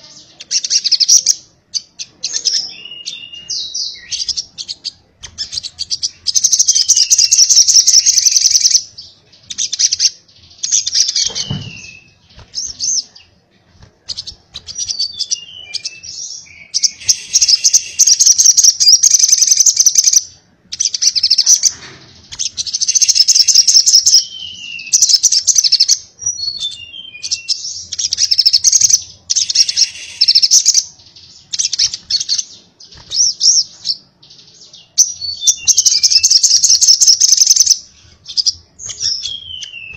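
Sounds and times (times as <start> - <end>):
sunbird chattering trills: 14.1 - 20.2, 28.1 - 32.4.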